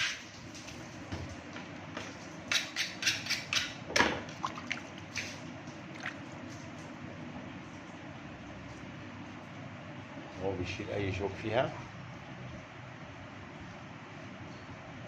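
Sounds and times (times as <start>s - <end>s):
splashes and knocks handling fish: 3.9s - 7.0s.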